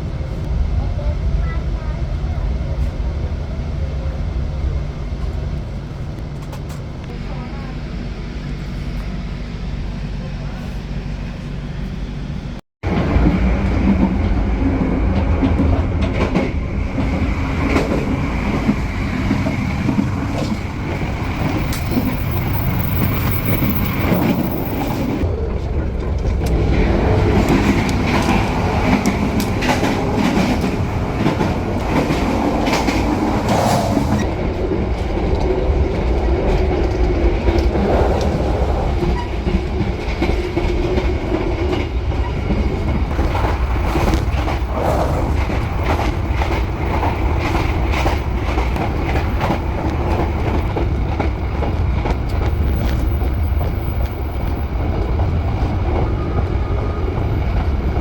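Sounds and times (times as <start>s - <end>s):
train rumbling along track: 0.0s - 58.0s
wheels clacking over rail joints: 12.8s - 58.0s.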